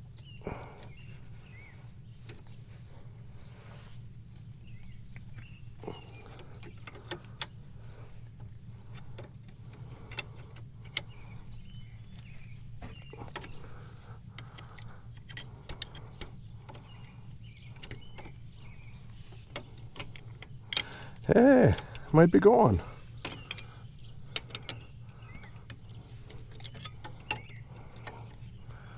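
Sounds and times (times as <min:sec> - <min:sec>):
steady low hum: 0:00.0 - 0:28.9
sharp metal clicks: 0:23.2 - 0:28.9
wrenches clinking on metal: 0:24.3 - 0:28.4.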